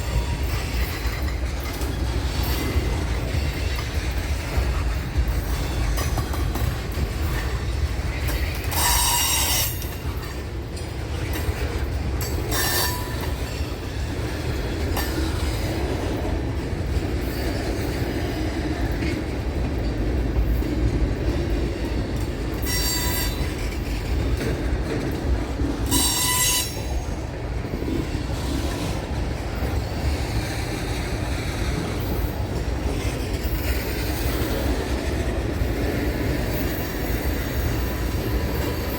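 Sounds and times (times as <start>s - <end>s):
train wheels rumbling on rail: 0.0s - 38.9s
high-pitched wheel squeals: 22.6s - 23.5s, 25.9s - 27.0s.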